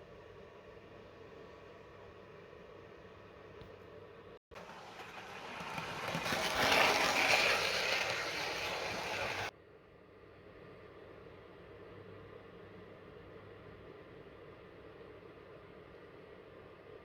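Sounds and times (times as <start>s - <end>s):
model train running on track: 4.5s - 9.5s.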